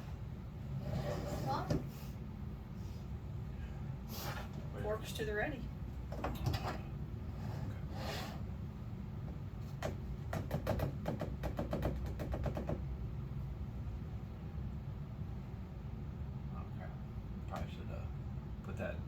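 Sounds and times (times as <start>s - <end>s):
steady low hum: 0.0s - 11.4s, 12.7s - 19.0s
light sharp clicks and taps: 17.5s - 17.8s.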